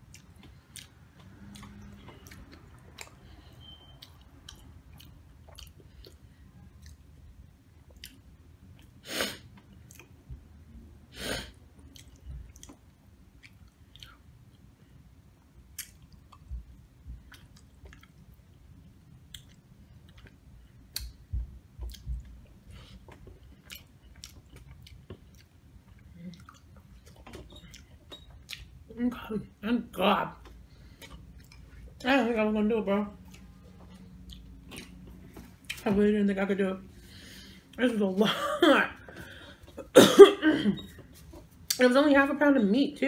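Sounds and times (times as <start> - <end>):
person chewing nachos: 0.0 - 10.3, 11.4 - 28.9, 30.6 - 31.9, 33.2 - 35.8.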